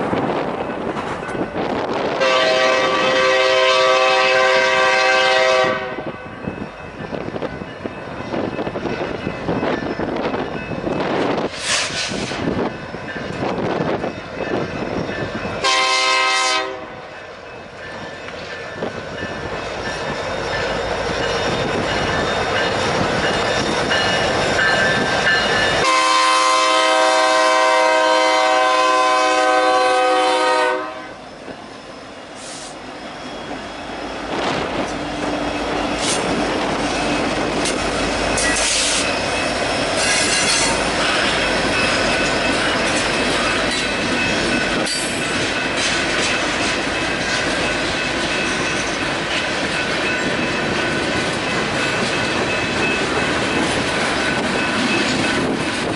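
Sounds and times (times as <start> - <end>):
locomotive air horn: 2.2 - 6.1, 15.6 - 17.0, 25.8 - 31.2
train wheels clacking: 6.6 - 28.0, 32.3 - 55.9.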